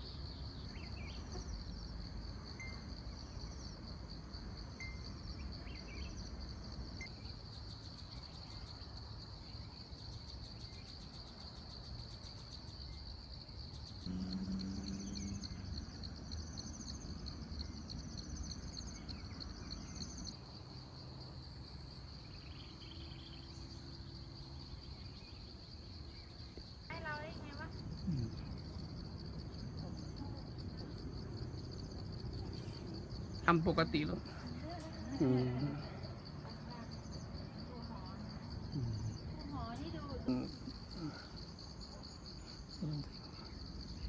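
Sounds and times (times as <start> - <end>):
insects trilling: 0.0 - 44.0
low rumble of wind: 13.9 - 33.6.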